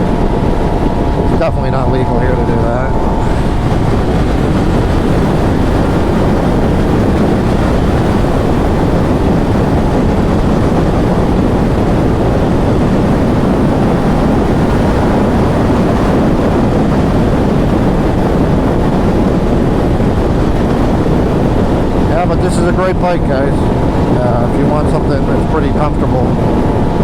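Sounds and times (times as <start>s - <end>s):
motorcycle engine running: 0.0s - 18.4s
wind rush over microphone: 0.0s - 27.0s.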